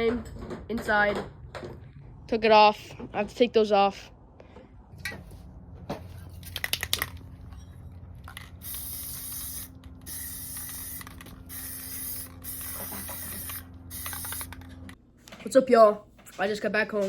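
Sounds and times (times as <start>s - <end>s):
spray can rattling: 6.4s - 7.2s, 8.2s - 14.7s
spray can hissing: 8.5s - 14.6s.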